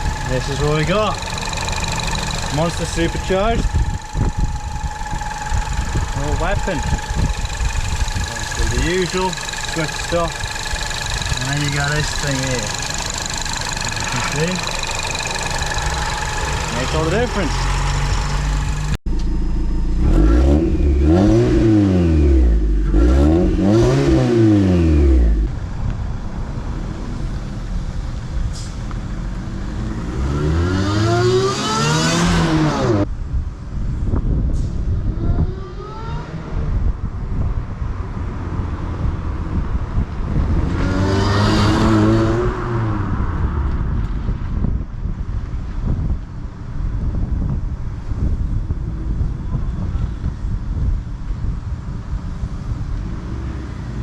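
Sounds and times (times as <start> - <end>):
car engine revving: 0.0 - 25.5, 40.6 - 43.1
supercharger whine: 0.0 - 33.1.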